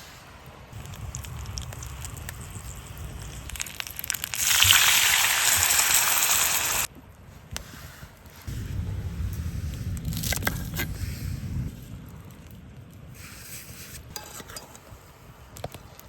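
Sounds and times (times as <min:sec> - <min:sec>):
campfire crackling and popping: 0:00.7 - 0:06.9
loud sizzling hiss: 0:00.7 - 0:06.9.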